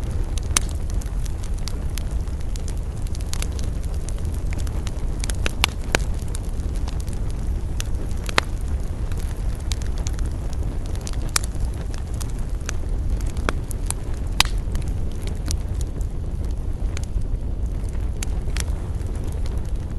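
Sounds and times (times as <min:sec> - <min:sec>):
campfire crackling and popping: 0:00.0 - 0:19.9
low rumble: 0:00.0 - 0:19.9.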